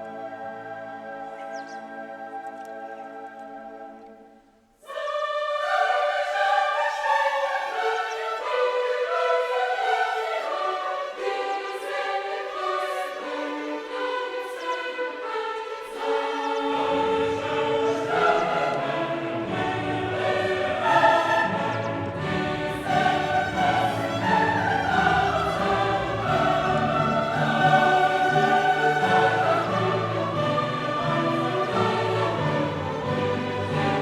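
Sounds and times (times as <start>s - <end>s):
choir singing: 0.0s - 34.0s
orchestra playing: 17.6s - 34.0s.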